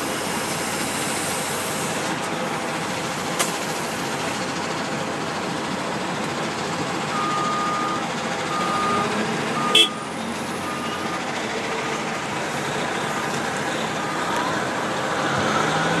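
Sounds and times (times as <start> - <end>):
heavy vehicle engine running: 0.0 - 16.0
backup alarm beeping: 7.1 - 12.0.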